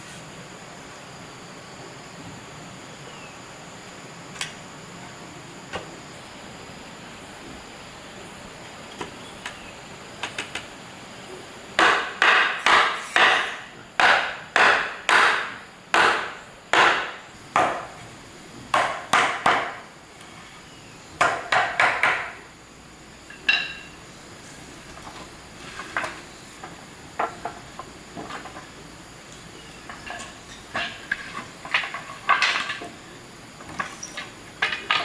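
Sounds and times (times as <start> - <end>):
hammer striking wood: 11.8 - 18.0, 18.7 - 19.8, 21.2 - 22.4.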